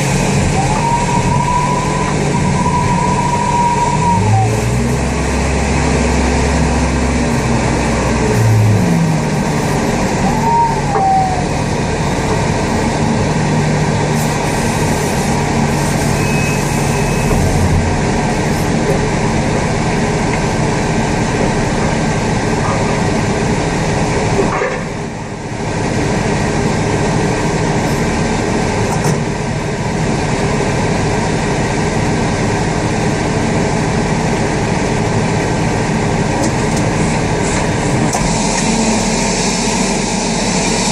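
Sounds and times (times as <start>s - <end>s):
tug engine droning: 0.0s - 40.9s.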